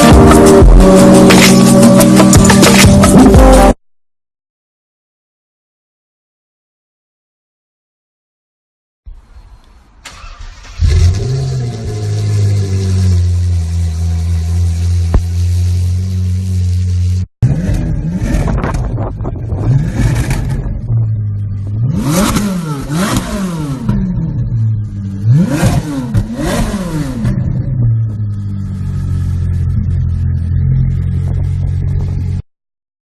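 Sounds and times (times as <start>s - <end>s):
engine idling and revving: 0.0s - 3.7s, 10.1s - 32.4s.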